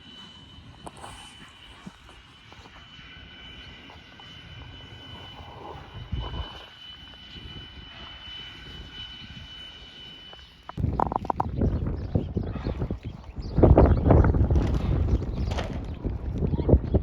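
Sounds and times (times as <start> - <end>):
distant engine drone: 0.0 - 17.0.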